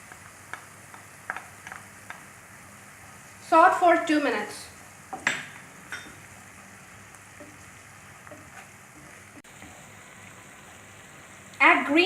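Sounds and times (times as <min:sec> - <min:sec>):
onions sizzling in oil: 0:00.0 - 0:12.0
spatula knocking on pan: 0:00.1 - 0:02.3, 0:05.1 - 0:06.3, 0:08.2 - 0:09.2.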